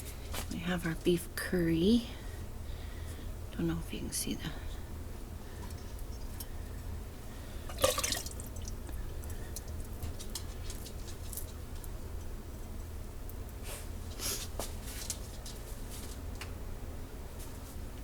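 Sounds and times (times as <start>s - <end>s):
steady low hum: 0.0s - 18.0s
wet plops and drips: 7.7s - 9.9s.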